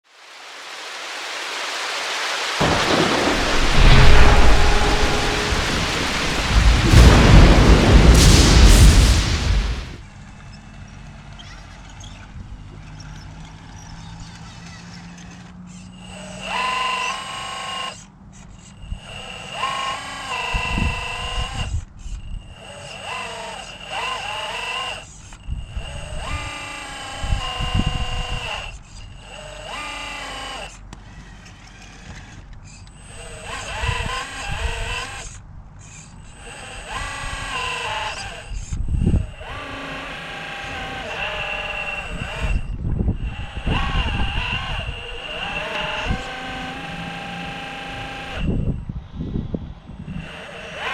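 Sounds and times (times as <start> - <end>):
low thumps: 2.6 - 10.0.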